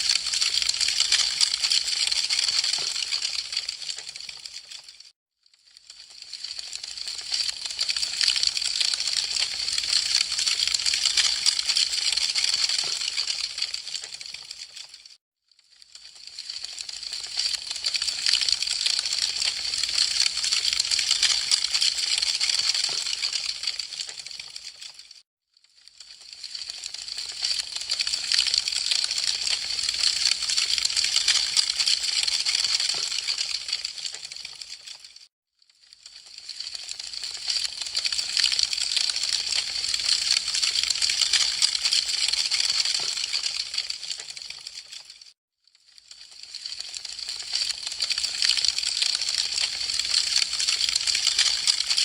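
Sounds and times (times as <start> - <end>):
wood fire crackling: 0.2 - 4.4, 33.2 - 35.0.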